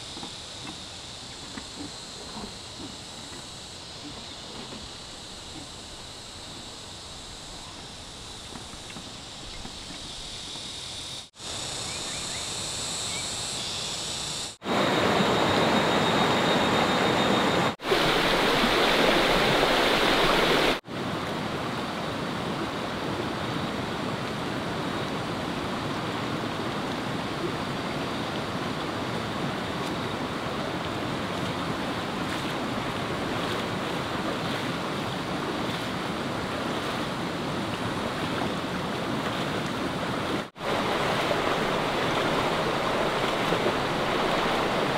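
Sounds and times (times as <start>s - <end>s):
flowing water rushing: 14.6s - 44.9s.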